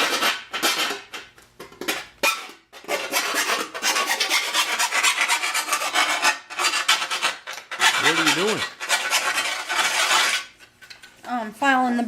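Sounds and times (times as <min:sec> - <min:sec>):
hand file rasping on metal: 0:02.8 - 0:10.6.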